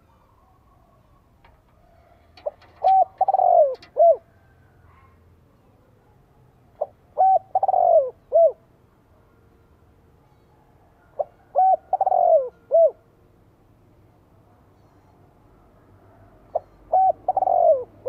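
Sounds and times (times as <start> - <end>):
dove cooing: 0.2 - 5.1, 6.8 - 8.7, 11.0 - 13.1, 16.5 - 18.0.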